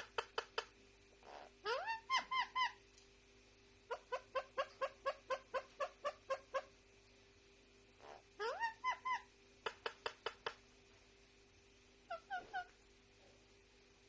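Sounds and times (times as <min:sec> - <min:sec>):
parakeet squawking: 0:01.2 - 0:02.8, 0:03.9 - 0:06.7, 0:08.0 - 0:10.5, 0:12.1 - 0:12.8.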